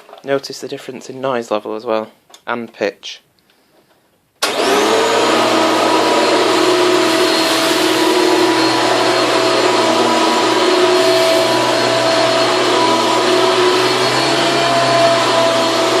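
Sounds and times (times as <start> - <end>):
vacuum cleaner whining: 4.4 - 16.0.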